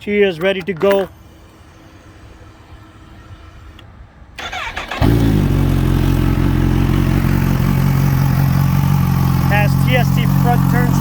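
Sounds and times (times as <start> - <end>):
motorcycle engine idling: 4.4 - 11.0
starter motor whine: 4.4 - 11.0.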